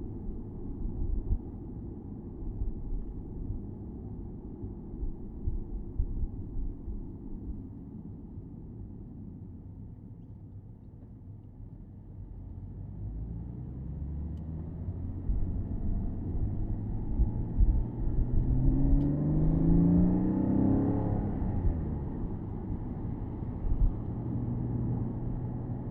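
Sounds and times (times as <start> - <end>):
road rumble: 0.0 - 7.8, 12.1 - 25.9
car engine accelerating: 13.7 - 25.9.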